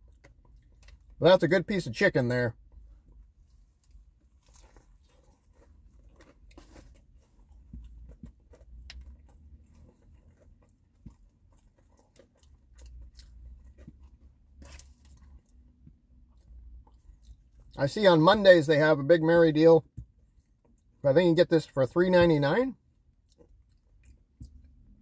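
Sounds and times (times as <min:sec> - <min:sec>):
person chewing sandwich: 0:00.0 - 0:01.2, 0:02.6 - 0:17.8, 0:19.9 - 0:21.0, 0:22.8 - 0:25.0
soft crunches: 0:02.7 - 0:17.8.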